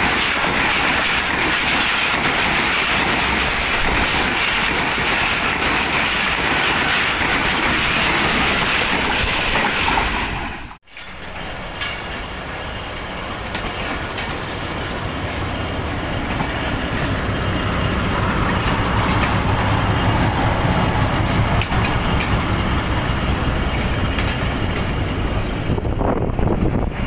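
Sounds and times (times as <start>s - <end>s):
train wheels rumbling on rails: 0.0s - 27.0s
clicks over rail joints: 13.5s - 14.5s.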